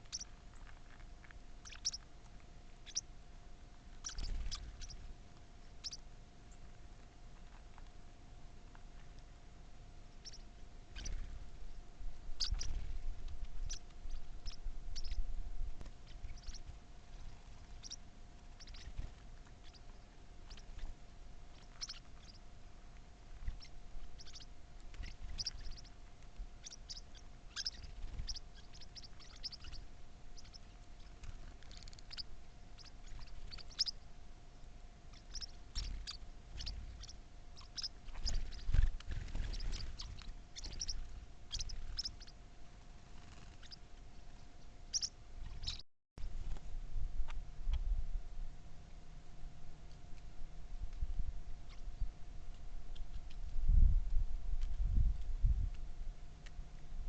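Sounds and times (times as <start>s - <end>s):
small birds chirping: 0.0s - 3.2s, 3.9s - 8.0s, 10.0s - 45.8s, 51.6s - 53.6s
faint steady hum: 0.0s - 57.0s.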